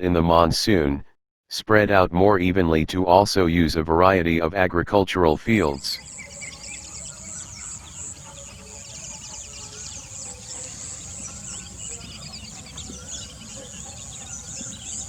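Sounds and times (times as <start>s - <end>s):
high insect trill pulsing: 6.0s - 15.0s.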